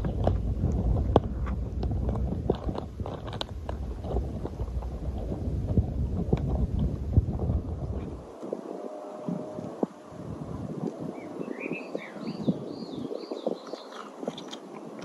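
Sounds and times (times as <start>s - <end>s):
sharp clicks and crackles: 0.0s - 5.4s
wind rumbling on microphone: 0.0s - 15.0s.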